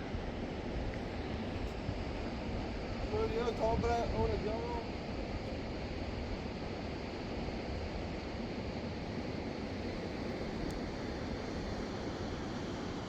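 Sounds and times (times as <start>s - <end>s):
wind rumbling on microphone: 0.0s - 8.4s.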